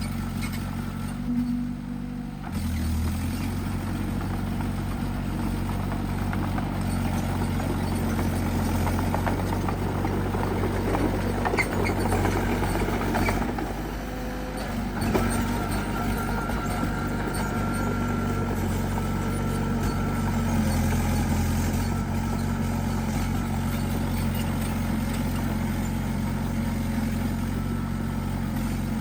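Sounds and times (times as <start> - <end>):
bulldozer diesel engine under load: 0.0 - 29.0
clanking and scraping: 4.0 - 13.8.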